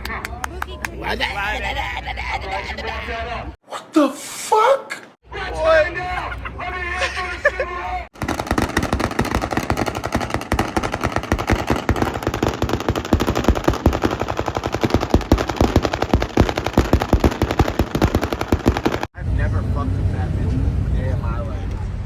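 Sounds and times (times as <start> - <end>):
loud sharp cracks and pops: 8.2 - 19.1.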